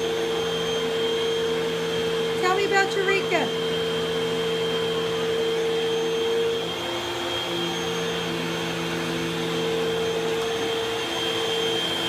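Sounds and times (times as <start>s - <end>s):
vacuum cleaner humming: 0.0s - 12.0s.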